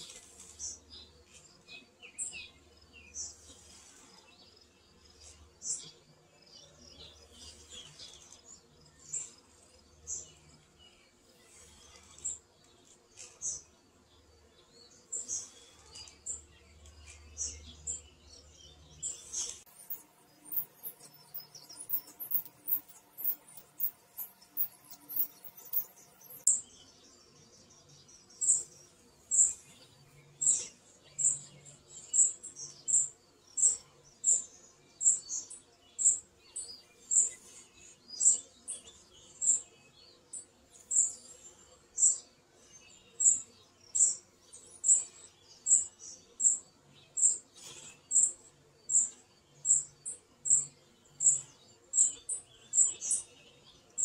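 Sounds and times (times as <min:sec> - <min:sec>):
faint fast high ticking: 0:19.5 - 0:26.5.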